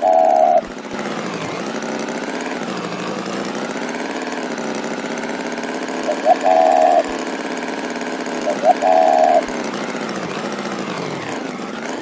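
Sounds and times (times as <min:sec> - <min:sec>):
loud held tone: 0:00.0 - 0:00.6, 0:06.0 - 0:07.2, 0:08.4 - 0:09.6
engine buzzing drone: 0:00.0 - 0:12.0.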